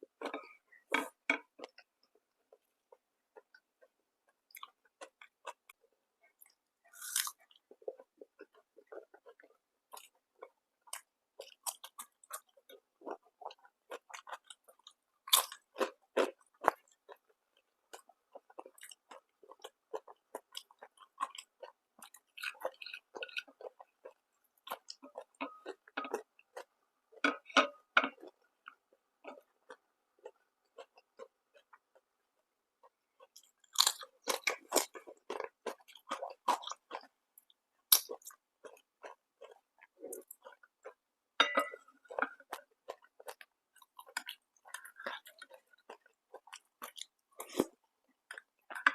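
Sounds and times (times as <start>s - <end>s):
chewing and crunching food: 0.0s - 48.9s
crunching bites of crisp food: 6.9s - 7.6s, 33.2s - 37.1s.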